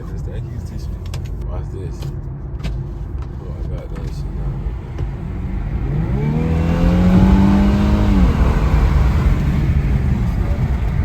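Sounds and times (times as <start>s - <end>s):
low road rumble: 0.0s - 11.0s
car engine accelerating: 2.7s - 11.0s.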